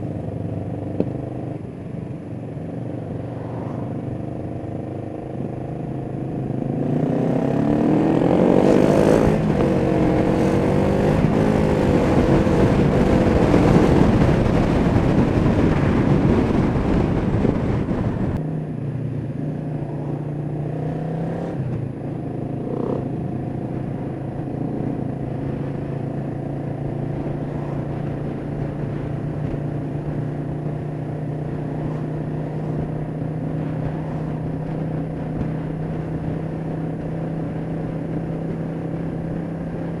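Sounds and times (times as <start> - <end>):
heavy wind noise: 0.0 - 40.0
motorcycle engine revving: 2.6 - 18.8, 19.4 - 40.0.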